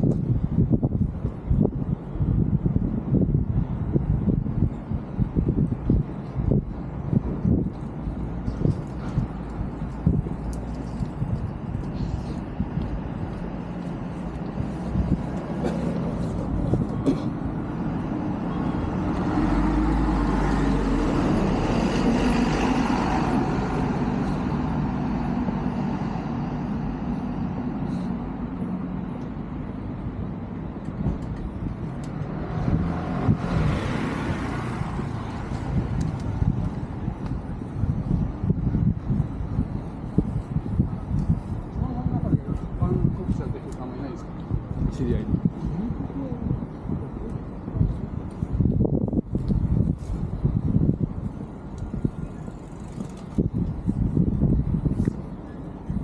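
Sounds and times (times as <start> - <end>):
car passing: 12.0 - 30.4, 31.6 - 38.3.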